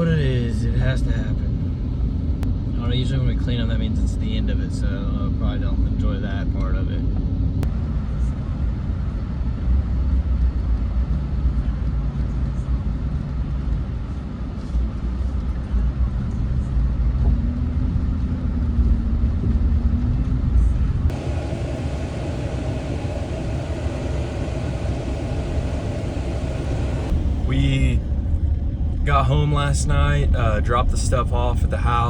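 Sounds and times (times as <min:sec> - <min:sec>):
road noise: 0:14.7 - 0:32.0
truck engine rumbling: 0:19.9 - 0:32.0.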